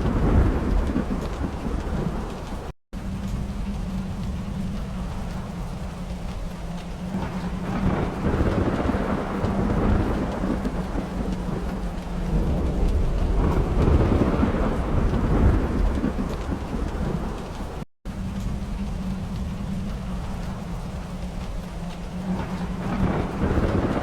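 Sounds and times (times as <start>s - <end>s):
steady rain: 0.0s - 24.0s
thunder rolling: 0.0s - 24.0s.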